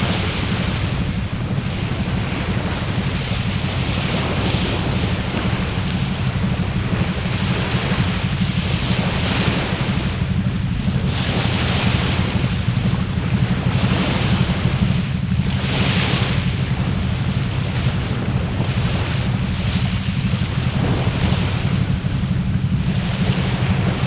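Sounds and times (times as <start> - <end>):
fire crackles: 0.0 - 11.3
bonfire hissing: 0.0 - 24.0
low rumble: 0.0 - 24.0.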